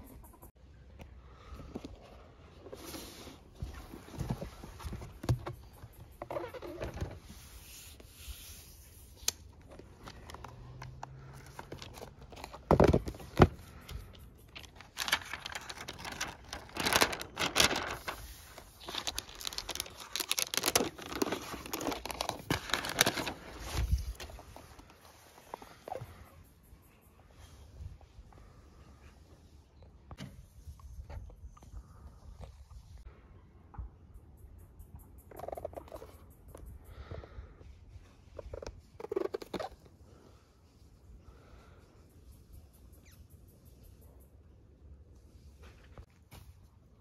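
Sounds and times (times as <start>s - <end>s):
plastic wrap crinkling: 14.6s - 24.9s.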